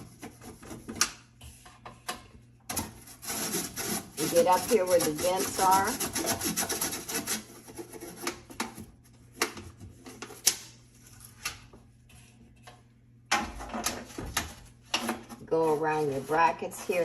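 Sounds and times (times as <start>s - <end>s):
toothbrush scrubbing: 3.0s - 8.5s, 15.5s - 17.0s.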